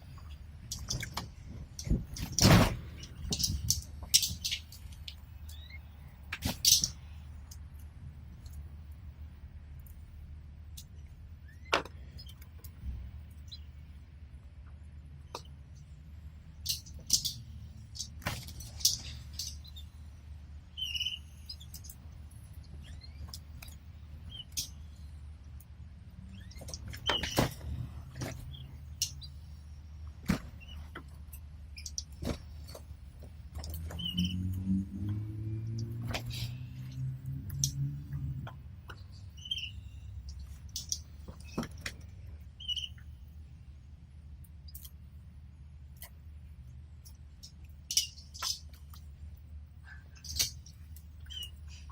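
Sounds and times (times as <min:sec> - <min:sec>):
canary chirps: 0:04.2 - 0:07.2, 0:18.7 - 0:25.2, 0:33.8 - 0:34.6, 0:38.9 - 0:41.6, 0:42.6 - 0:43.2, 0:50.2 - 0:51.9
canary chirping: 0:20.7 - 0:21.9, 0:33.9 - 0:34.6, 0:39.0 - 0:40.4, 0:42.6 - 0:43.1, 0:51.2 - 0:51.7.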